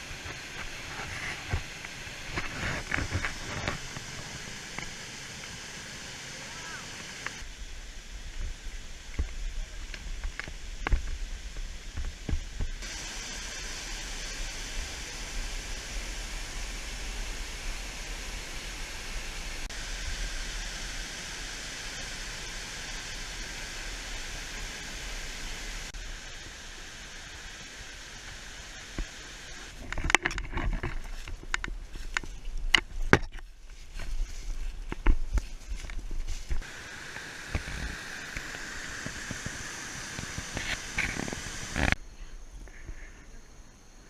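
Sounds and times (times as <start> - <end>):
waterfall rushing: 0.0 - 8.0, 12.8 - 29.8, 36.6 - 42.0.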